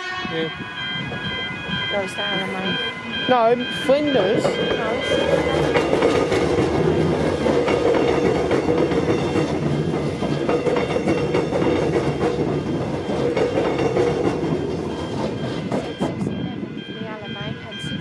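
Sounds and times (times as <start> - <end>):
electric train running past: 0.0 - 18.0
wheels clicking over rail joints: 3.3 - 16.2.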